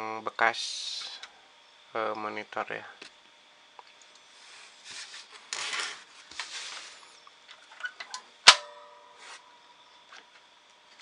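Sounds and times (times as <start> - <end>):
sharp metallic clang: 8.5 - 9.2.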